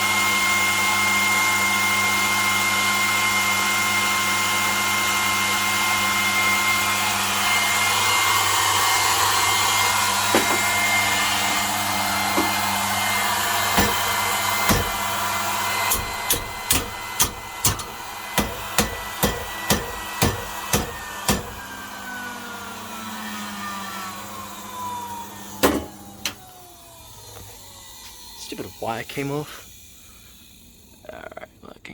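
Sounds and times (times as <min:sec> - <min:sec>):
sewing machine motor whining: 0:00.0 - 0:31.3
sharp knocks: 0:10.3 - 0:10.8, 0:13.7 - 0:15.2, 0:15.9 - 0:21.7.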